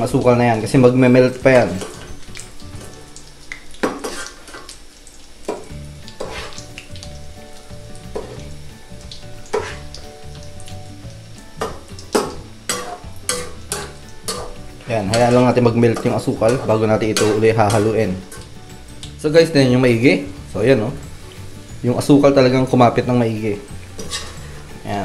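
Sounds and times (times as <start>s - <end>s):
food frying in hot oil: 0.0s - 25.0s
metal spatula scraping pan: 3.8s - 4.7s, 6.2s - 6.7s, 8.1s - 8.5s, 9.5s - 10.0s, 11.6s - 18.5s, 23.9s - 24.8s.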